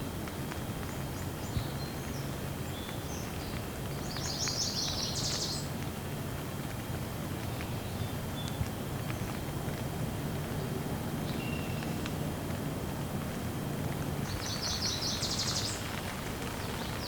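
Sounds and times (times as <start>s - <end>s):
faint drip ticks: 0.0s - 17.0s
steady rain falling: 0.0s - 17.0s
small birds chirping: 1.2s - 5.8s, 10.4s - 12.2s, 14.2s - 17.0s.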